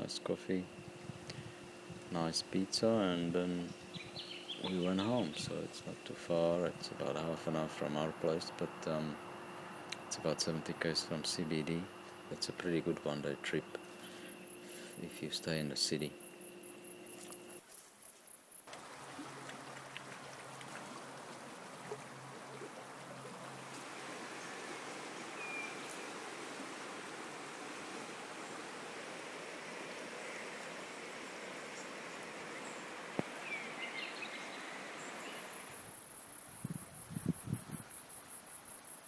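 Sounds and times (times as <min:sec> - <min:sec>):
river water rushing: 0:18.7 - 0:35.5.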